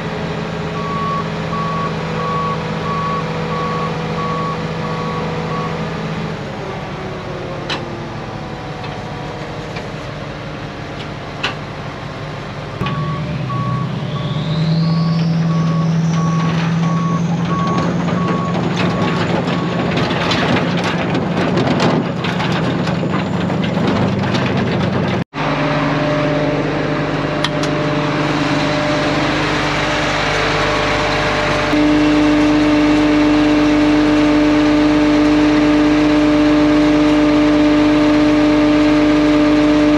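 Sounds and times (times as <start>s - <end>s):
heavy truck engine running: 0.0s - 39.9s
backup alarm beeping: 0.8s - 5.8s, 12.8s - 19.8s
rising whine: 12.8s - 18.6s, 25.3s - 39.9s.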